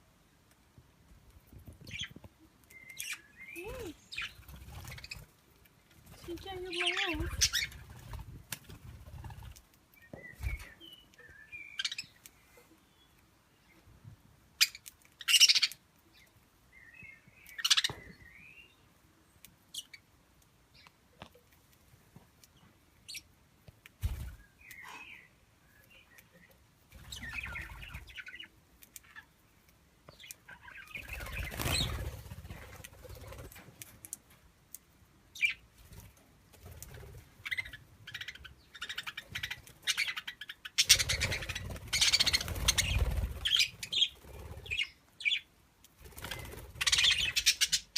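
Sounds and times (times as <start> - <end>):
wings flapping: 3.6 - 5.3, 6.0 - 9.7, 31.0 - 33.7, 40.8 - 44.8, 46.0 - 47.4.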